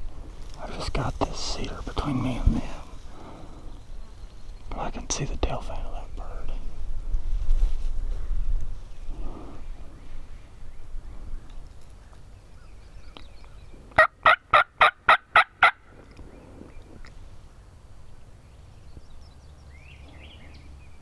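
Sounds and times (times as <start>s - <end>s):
wild turkey calling: 9.1s - 17.2s.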